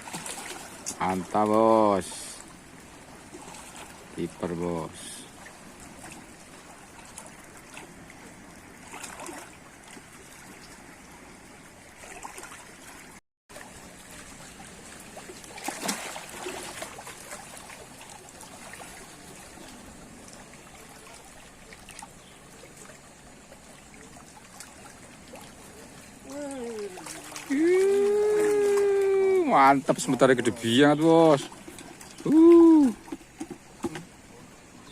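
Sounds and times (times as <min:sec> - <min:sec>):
splashy rustling bursts: 0:00.0 - 0:01.2, 0:08.8 - 0:10.6, 0:12.0 - 0:19.5, 0:24.2 - 0:33.8
water trickling and lapping: 0:00.0 - 0:34.9.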